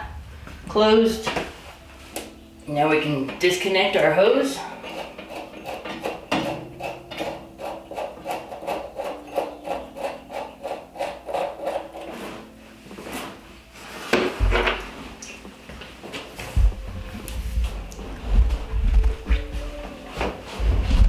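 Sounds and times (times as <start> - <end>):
deep low rumble: 0.0 - 2.0, 16.6 - 19.8, 20.6 - 21.0.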